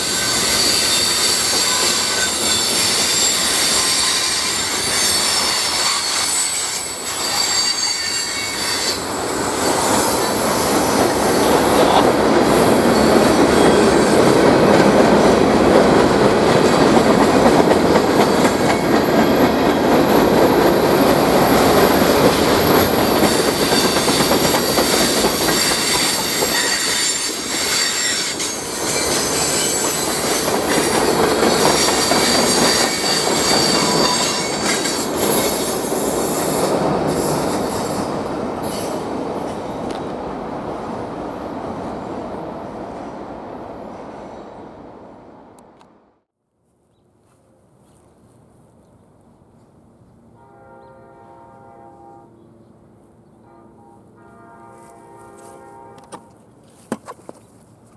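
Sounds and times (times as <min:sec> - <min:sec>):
clickety-clack of rail joints: 0:00.0 - 0:44.3
wheels squealing on rails: 0:00.0 - 0:44.8
train rumbling past: 0:00.0 - 0:46.2.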